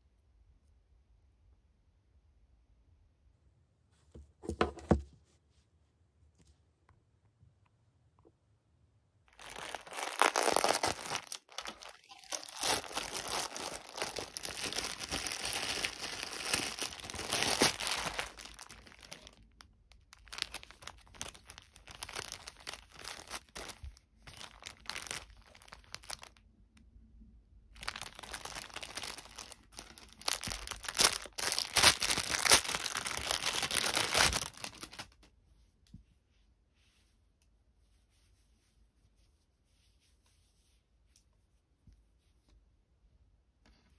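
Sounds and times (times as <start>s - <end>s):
packaging crinkling and tearing: 9.3s - 26.4s, 27.8s - 35.2s.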